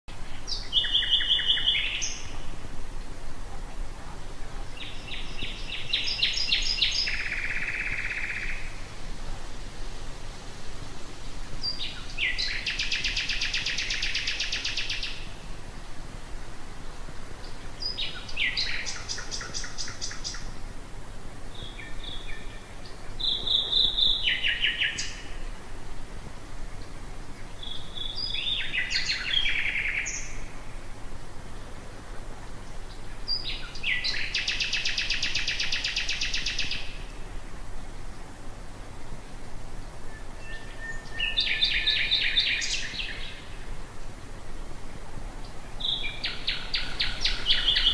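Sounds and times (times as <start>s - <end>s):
nightingale singing: 0.2s - 2.6s, 4.6s - 8.9s, 11.6s - 15.9s, 17.4s - 20.6s, 21.5s - 25.6s, 26.8s - 30.7s, 32.6s - 37.3s, 40.0s - 43.7s, 45.4s - 47.9s.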